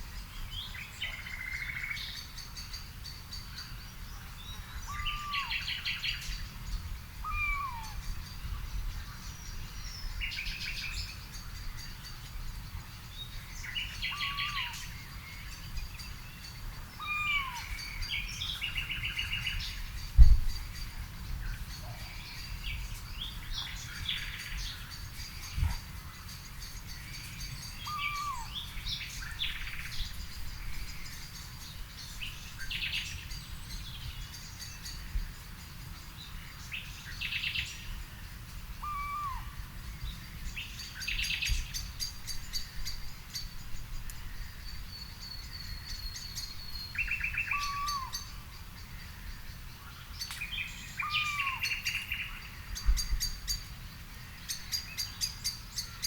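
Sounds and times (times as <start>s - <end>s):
birds chirping and trilling: 0.1s - 56.0s
low arched bird call: 7.2s - 8.0s, 27.7s - 28.8s, 38.8s - 39.6s.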